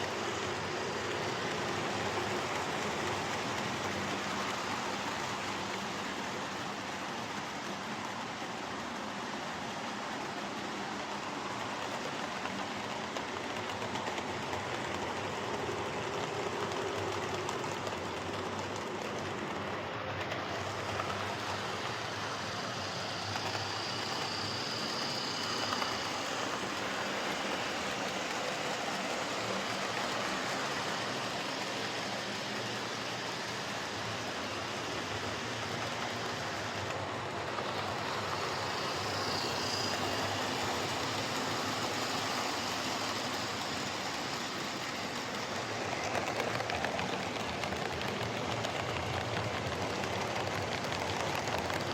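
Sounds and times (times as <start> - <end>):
model train motor whirring: 0.0 - 51.9.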